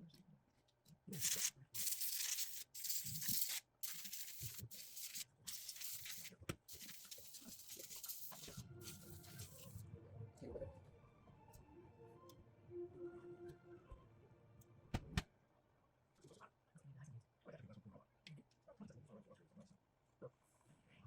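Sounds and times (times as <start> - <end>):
hissing spray bursts: 1.2 - 9.6.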